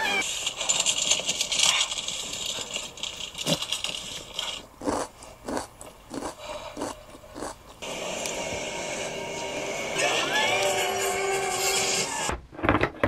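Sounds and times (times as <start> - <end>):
crunchy chewing: 1.1 - 7.8.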